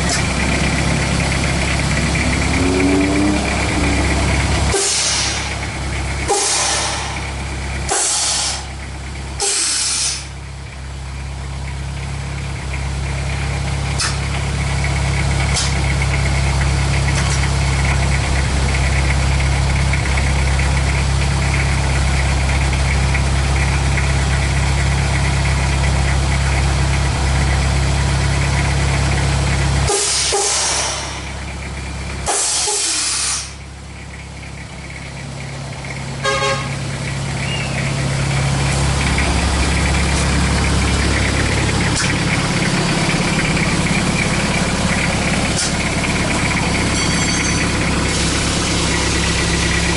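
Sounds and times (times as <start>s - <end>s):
diesel engine idling: 0.0s - 49.9s
hiss bursts: 7.9s - 8.7s, 9.4s - 10.3s.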